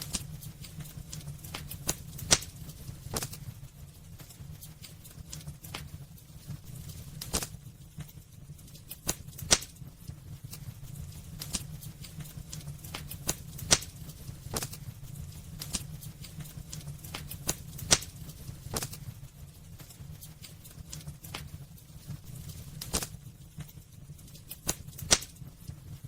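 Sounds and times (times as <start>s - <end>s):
wood fire crackling and popping: 0.0s - 26.0s.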